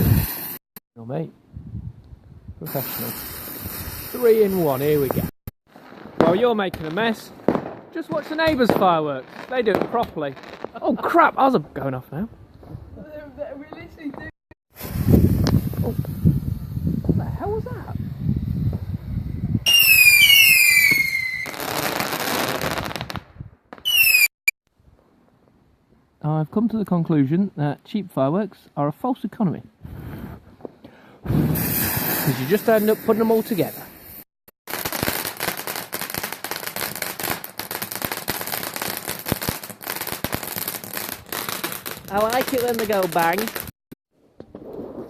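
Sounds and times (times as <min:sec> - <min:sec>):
firework crackling: 0:00.0 - 0:00.6, 0:02.6 - 0:11.3, 0:13.5 - 0:23.2, 0:31.2 - 0:43.8
firework whistle falling in pitch: 0:19.7 - 0:21.6, 0:23.8 - 0:24.3.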